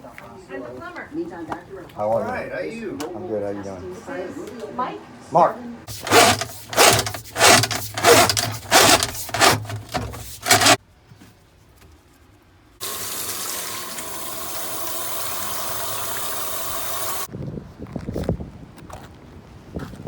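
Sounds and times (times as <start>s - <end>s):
water running in a stream: 12.8s - 17.3s.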